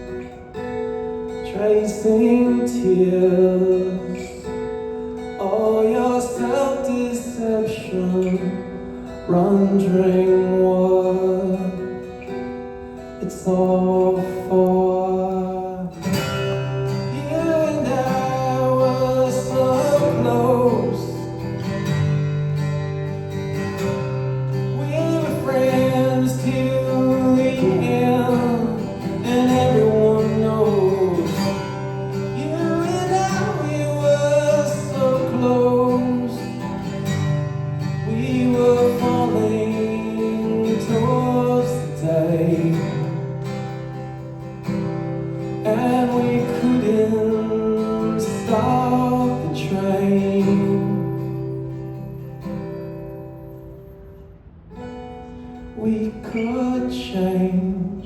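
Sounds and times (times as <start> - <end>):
guitar: 0.0 - 58.0
man singing: 1.4 - 12.5, 13.1 - 21.8, 24.5 - 44.0, 45.4 - 51.7, 55.8 - 58.0.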